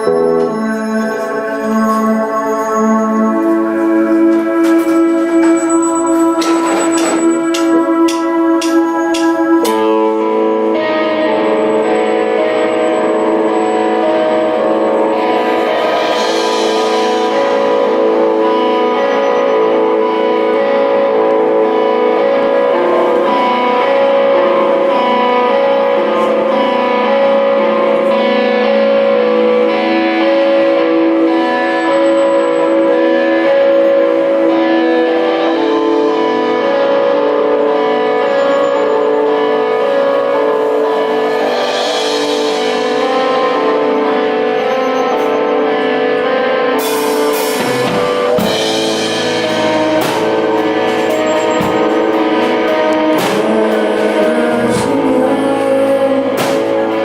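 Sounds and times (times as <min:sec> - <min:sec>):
electric guitar held notes: 0:00.0 - 0:57.0
live rock band playing: 0:00.0 - 0:57.0
drum kit cymbal crashes: 0:46.8 - 0:54.2.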